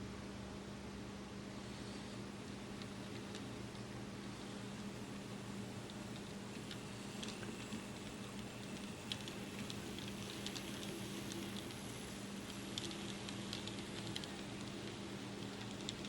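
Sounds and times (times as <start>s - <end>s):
model train running on track: 4.7s - 16.0s.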